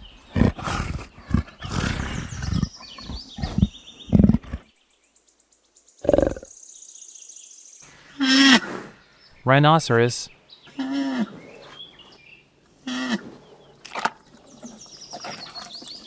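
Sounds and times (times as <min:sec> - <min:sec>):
leopard roaring: 0:00.0 - 0:04.7.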